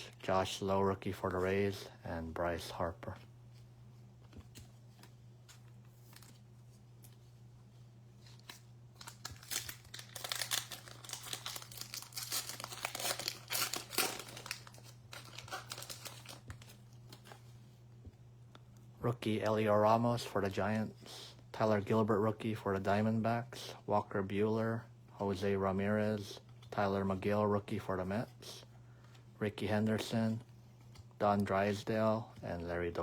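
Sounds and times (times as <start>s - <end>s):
steady low hum: 0.0s - 33.0s
wrapper crinkling and tearing: 8.2s - 17.4s.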